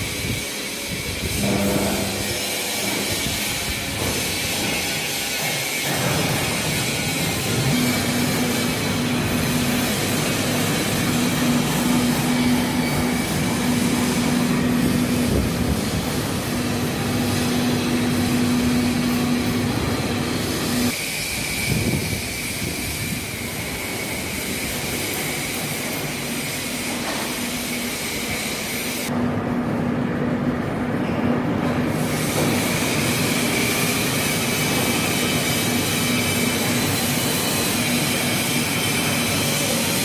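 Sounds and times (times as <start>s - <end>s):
high steady whine: 0.0s - 5.4s, 6.0s - 31.2s
train running hum: 0.0s - 40.0s.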